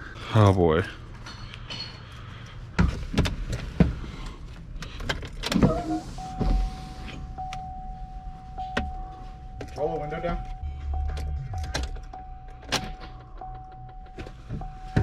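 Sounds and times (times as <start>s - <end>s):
steady high-pitched tone: 5.9s - 15.0s.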